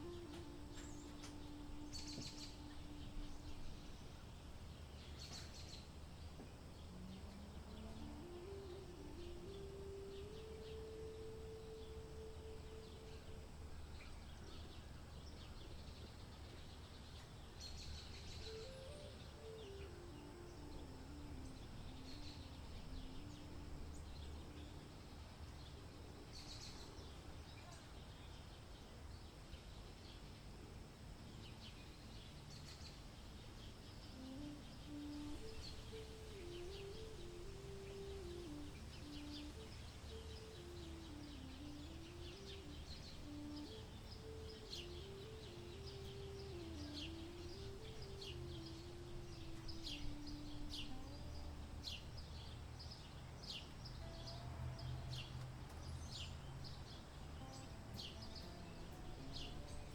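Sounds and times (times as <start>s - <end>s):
faint held tone: 0.0s - 4.2s, 6.9s - 14.8s, 18.1s - 25.1s, 34.1s - 52.1s
small bird chirps: 0.0s - 28.0s, 31.8s - 59.9s.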